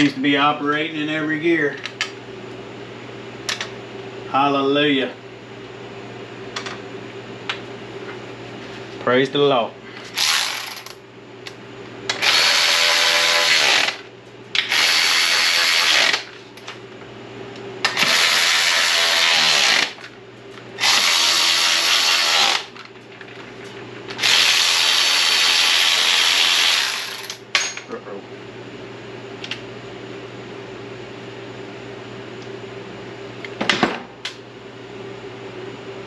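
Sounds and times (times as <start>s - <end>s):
power drill whining: 12.2s - 14.0s, 14.6s - 16.3s, 17.9s - 20.0s, 20.8s - 22.8s, 24.2s - 27.3s.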